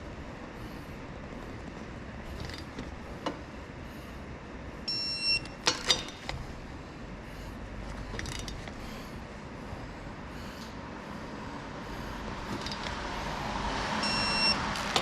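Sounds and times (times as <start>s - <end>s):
sharp clicks and knocks: 5.4s - 6.4s, 12.5s - 13.1s, 14.7s - 15.0s
short electronic beep: 14.0s - 14.6s.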